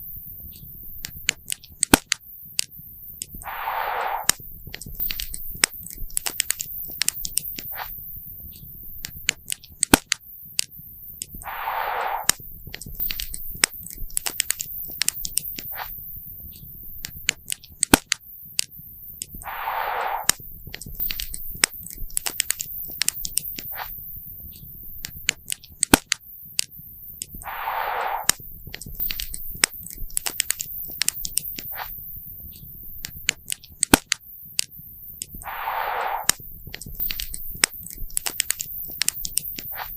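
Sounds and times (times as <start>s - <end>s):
short rushing hiss: 3.4s - 4.4s, 11.4s - 12.4s, 19.4s - 20.4s, 27.4s - 28.4s, 35.4s - 36.4s.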